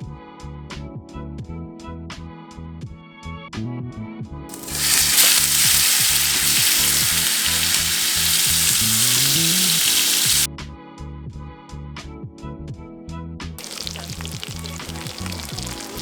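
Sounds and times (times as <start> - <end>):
fish sizzling in hot oil: 4.5 - 10.5, 13.6 - 16.0.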